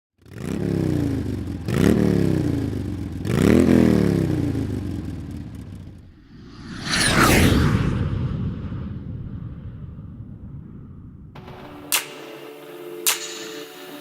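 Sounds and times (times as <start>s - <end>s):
motorcycle engine revving: 0.2s - 6.3s.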